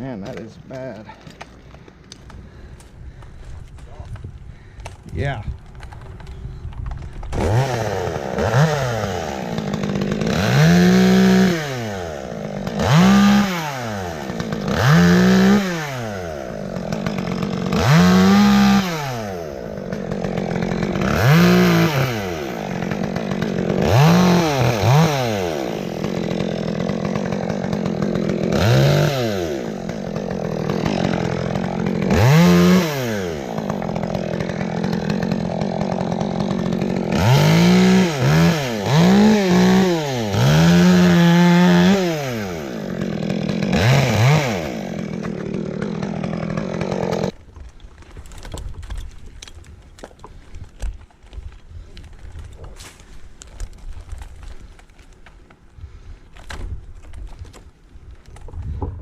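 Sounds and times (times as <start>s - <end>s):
chainsaw idling and revving: 7.0s - 47.5s.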